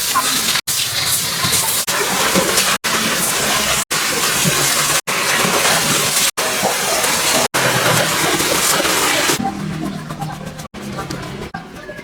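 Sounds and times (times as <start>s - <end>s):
pressure washer spraying water: 0.0s - 9.4s.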